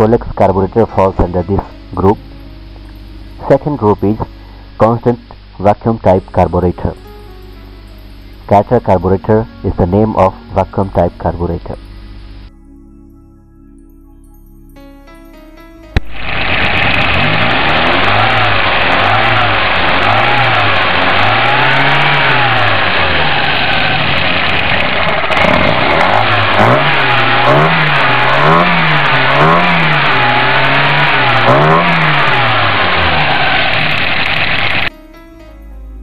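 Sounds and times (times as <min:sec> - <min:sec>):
engine revving: 0:16.0 - 0:34.9.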